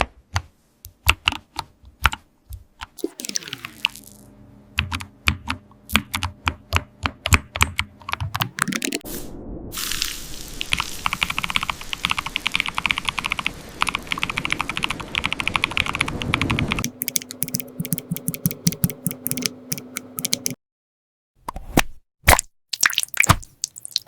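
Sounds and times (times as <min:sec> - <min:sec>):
typing on a computer keyboard: 0:10.7 - 0:20.6
low steady hum: 0:16.6 - 0:20.6.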